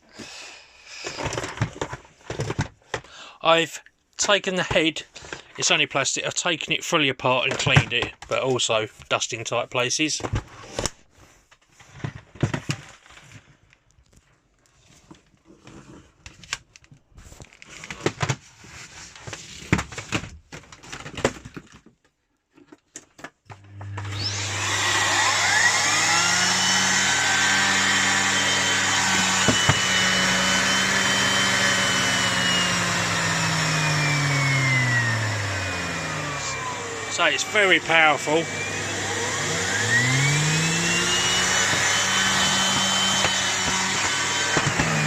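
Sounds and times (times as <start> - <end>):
vacuum cleaner motor whining: 1.0 - 2.7, 23.5 - 45.0.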